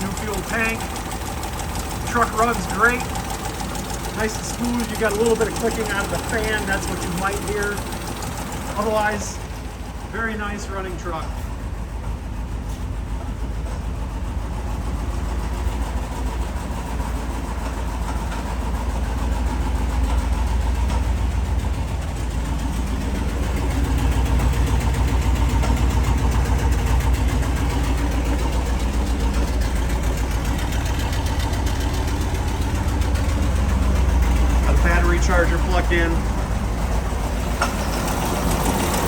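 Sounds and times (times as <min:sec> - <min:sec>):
engine idling smoothly: 0:00.0 - 0:39.0.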